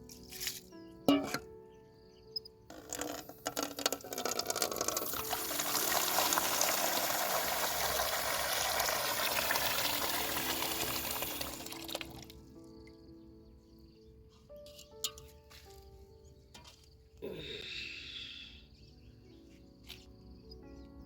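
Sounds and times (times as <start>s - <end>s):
water running and splashing: 3.8s - 12.4s.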